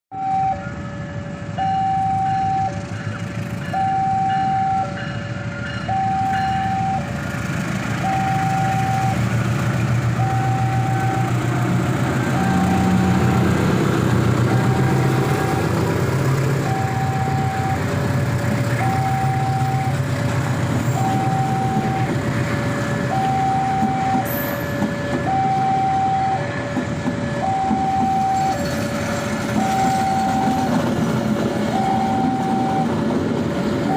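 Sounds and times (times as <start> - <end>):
two-tone electronic warning signal: 0.1 - 7.2, 8.0 - 9.3, 10.2 - 11.6, 12.3 - 13.4, 14.4 - 15.8, 16.6 - 17.9, 18.8 - 20.0, 20.9 - 30.9, 31.7 - 33.0
diesel locomotive engine rumble: 0.1 - 33.9.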